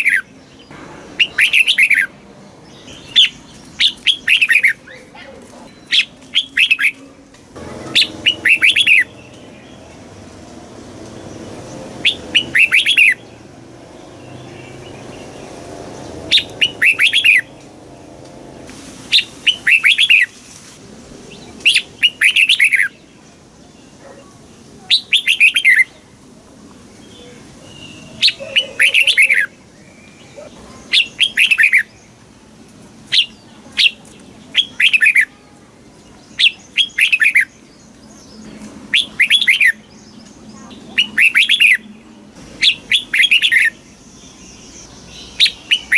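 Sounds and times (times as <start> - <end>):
bird singing whistled phrases: 8.0 - 9.1, 38.9 - 39.8, 41.0 - 41.8, 45.3 - 45.9.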